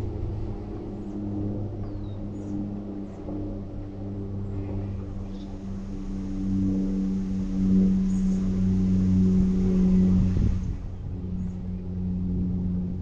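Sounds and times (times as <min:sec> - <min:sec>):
vehicle engine running: 0:00.0 - 0:13.0
road or wind noise hiss: 0:03.9 - 0:13.0.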